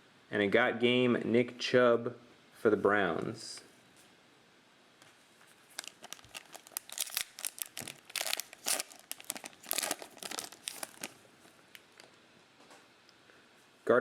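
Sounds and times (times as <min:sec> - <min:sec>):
card pack wrapper tearing and crinkling: 0:05.7 - 0:12.2.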